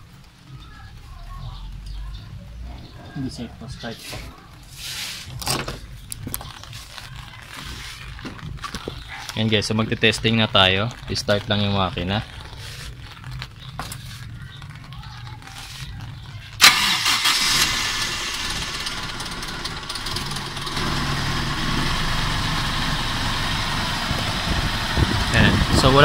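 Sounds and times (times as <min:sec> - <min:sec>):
car engine starting and running: 0:16.5 - 0:26.0.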